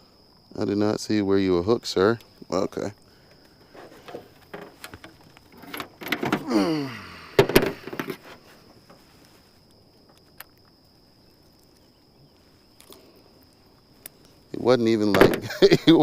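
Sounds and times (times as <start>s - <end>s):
light handling clicks: 10.0s - 10.8s.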